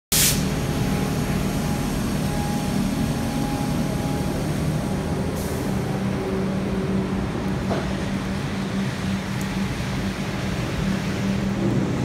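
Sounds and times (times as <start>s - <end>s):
burst of hiss: 0.1s - 0.5s
train rumbling on rails: 0.1s - 12.0s.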